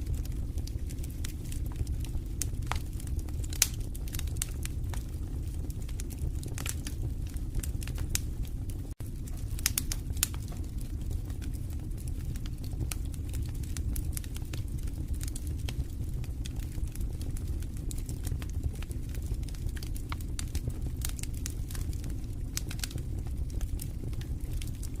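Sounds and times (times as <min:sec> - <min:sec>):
wood fire crackling: 0:00.0 - 0:25.0
sharp pops of fire: 0:00.2 - 0:05.0, 0:09.2 - 0:10.6.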